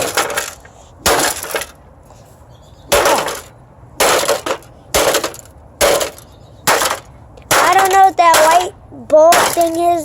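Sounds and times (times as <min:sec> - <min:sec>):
rattling of broken pieces: 0:00.0 - 0:01.8, 0:02.9 - 0:10.0
washing machine panel being smashed: 0:02.9 - 0:08.6, 0:09.3 - 0:09.8.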